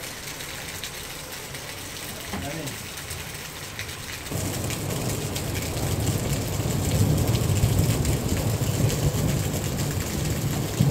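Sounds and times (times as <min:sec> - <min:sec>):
heavy rain splashing into water: 0:00.0 - 0:10.9.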